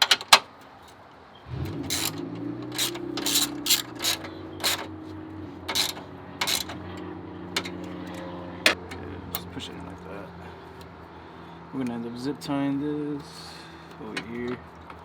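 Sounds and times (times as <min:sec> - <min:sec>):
parts clicking and clacking: 0:00.0 - 0:10.0, 0:13.2 - 0:15.0.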